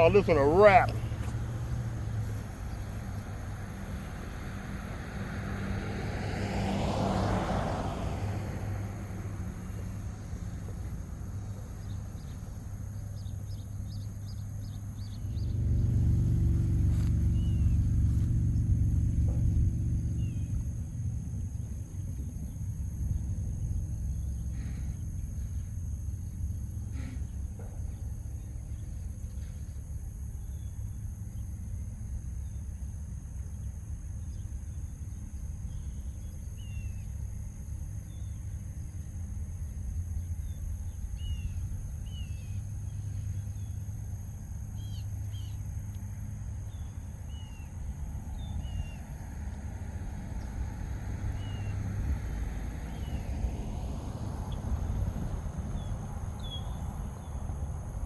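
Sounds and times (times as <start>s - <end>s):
vehicle passing: 0.0s - 13.1s, 13.7s - 30.3s, 37.3s - 58.0s
steady low rumble: 14.3s - 26.8s.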